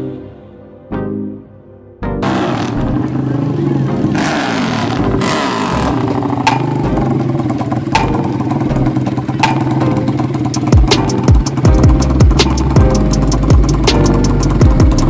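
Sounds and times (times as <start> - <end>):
dirt bike engine revving and idling: 2.2 - 15.0.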